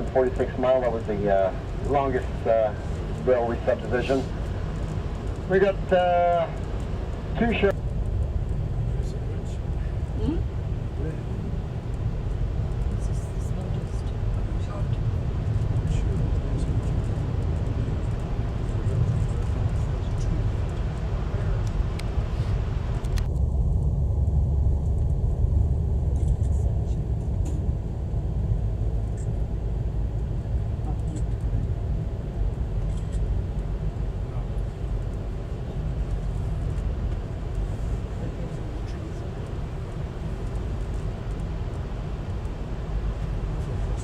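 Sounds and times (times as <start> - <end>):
low rumble of moving train: 0.0 - 44.0.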